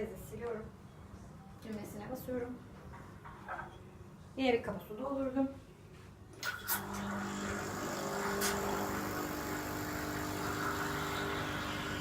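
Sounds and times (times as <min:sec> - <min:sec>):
coffee machine humming and hissing: 0:06.4 - 0:12.0.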